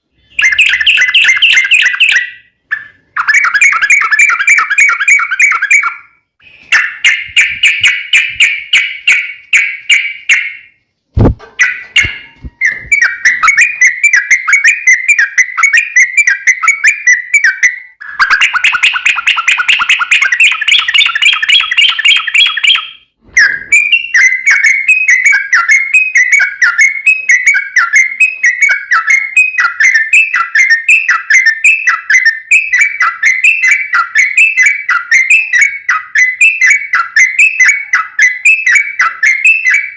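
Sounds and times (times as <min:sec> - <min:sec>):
brief knock: 0:11.2 - 0:12.4.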